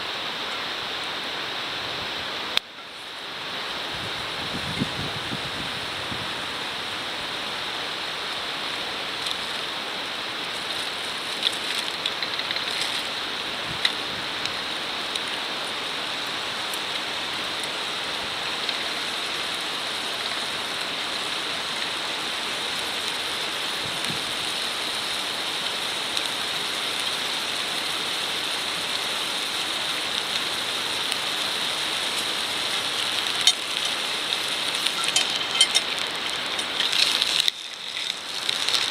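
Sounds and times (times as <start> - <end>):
wood fire hissing: 0.0 - 38.9
fire crackles and pops: 2.5 - 38.9.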